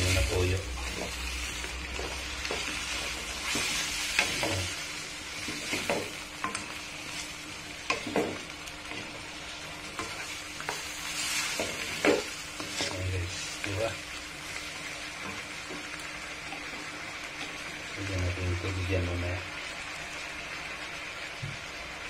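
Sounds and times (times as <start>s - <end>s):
wooden spatula scraping and knocking: 0.0s - 4.8s, 5.4s - 7.2s, 7.9s - 9.2s, 9.9s - 13.9s
food frying with a sizzle: 0.0s - 22.0s.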